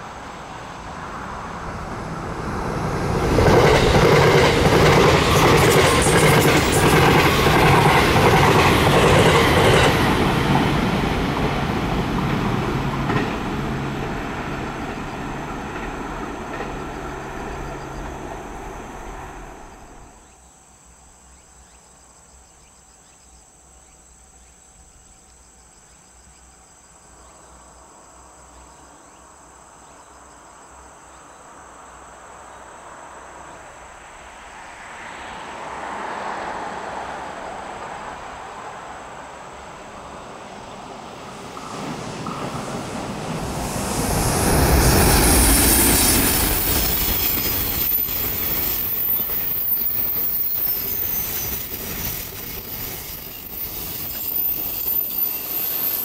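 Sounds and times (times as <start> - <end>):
freight train approaching: 0.0 - 20.4, 31.6 - 56.0
outdoor ambience: 0.0 - 56.0
train wheels clattering: 3.2 - 18.2, 41.4 - 56.0.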